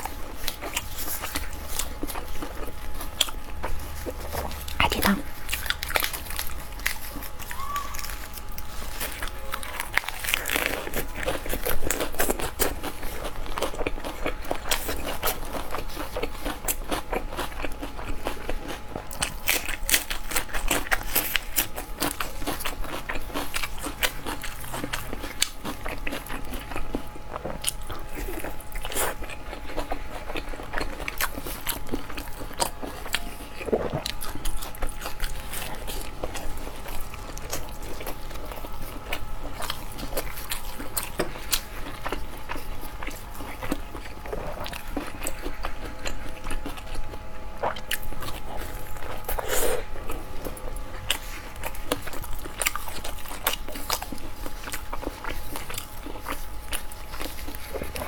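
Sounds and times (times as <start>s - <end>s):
person chewing and crunching food: 0.0s - 58.0s.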